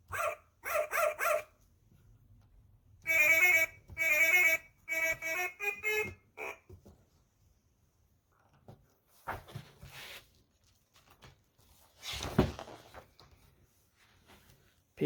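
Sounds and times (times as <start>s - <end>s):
book rustling and knocking: 8.6s - 10.3s, 10.9s - 13.5s.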